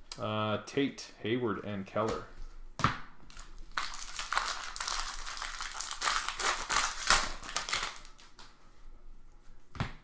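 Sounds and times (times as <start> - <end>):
foil card pack crinkling: 3.3 - 8.4.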